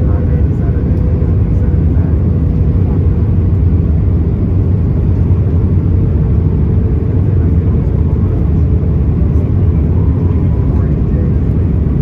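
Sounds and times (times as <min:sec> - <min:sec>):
aircraft cabin engine rumble: 0:00.0 - 0:12.0.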